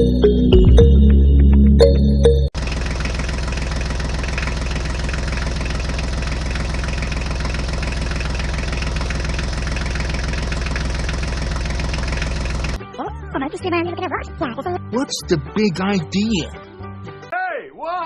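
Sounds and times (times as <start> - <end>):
tractor engine idling: 2.2 - 14.5.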